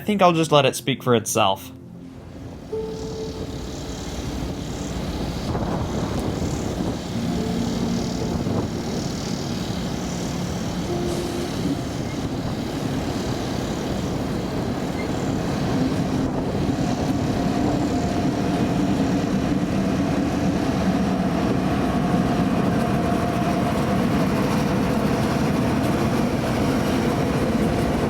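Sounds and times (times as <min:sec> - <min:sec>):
locomotive engines droning: 0:01.7 - 0:28.0
held tones: 0:07.1 - 0:13.1.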